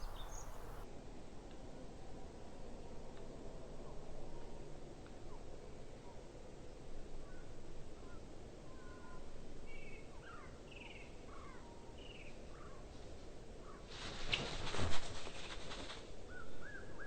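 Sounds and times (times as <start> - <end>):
loud rustling: 0.0 - 0.8
slowed bird chirps and whistles: 0.0 - 0.8.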